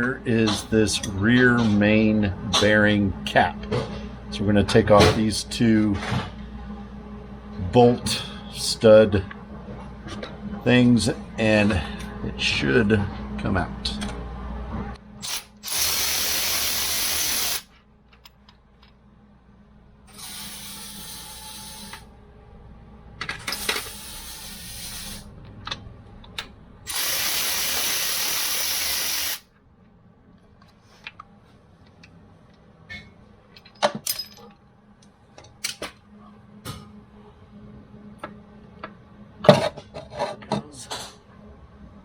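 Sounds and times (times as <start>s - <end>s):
power tool bursts: 15.2s - 17.7s, 20.1s - 22.0s, 26.9s - 29.4s.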